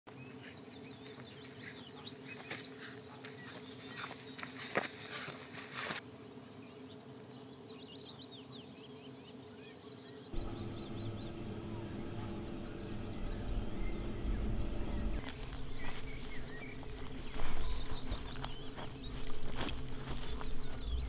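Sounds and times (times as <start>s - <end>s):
birds chirping at night: 0.1s - 5.3s, 6.0s - 21.0s
low rumble: 10.4s - 21.0s
footsteps through grass: 13.7s - 21.0s.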